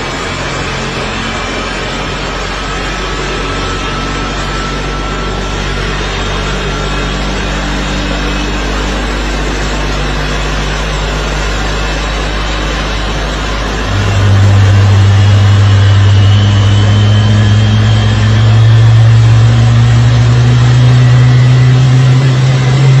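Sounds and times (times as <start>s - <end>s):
loud rushing noise: 0.0s - 23.0s
steady engine drone: 0.0s - 23.0s.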